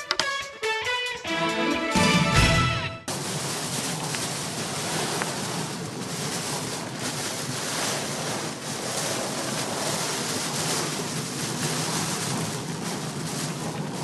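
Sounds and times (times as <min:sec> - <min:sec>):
heavy rain on car roof: 0:03.0 - 0:14.0.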